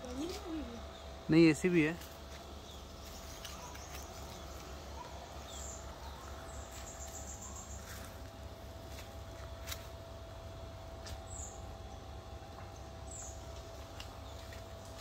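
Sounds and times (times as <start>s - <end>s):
steady low hum: 0.0s - 15.0s
faint high bird chirps: 2.6s - 8.2s.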